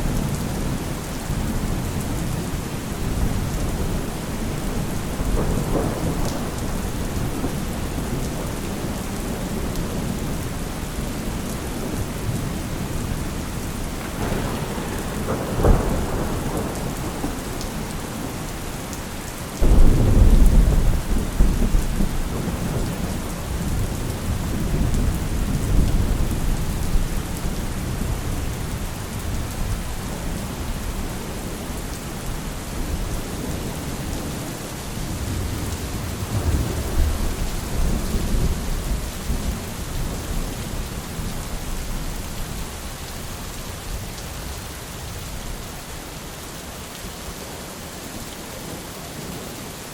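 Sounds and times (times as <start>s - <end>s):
deep rumble of thunder: 0.0s - 18.9s, 19.6s - 34.4s, 35.0s - 42.6s
steady rain hiss: 0.0s - 49.9s
thunder crack: 5.1s - 7.6s, 14.0s - 18.4s, 19.6s - 26.4s.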